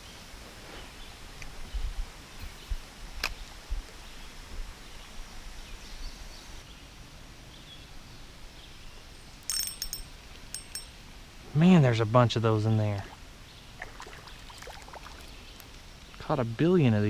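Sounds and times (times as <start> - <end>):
wind bumps on microphone: 1.5 - 3.9
metallic jingle: 9.4 - 11.0
creek flowing: 11.6 - 16.0.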